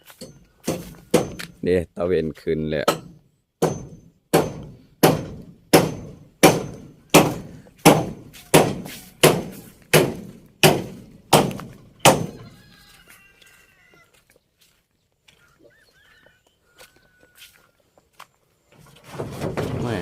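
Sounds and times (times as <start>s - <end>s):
tool striking wood: 0.1s - 1.6s, 2.8s - 12.4s.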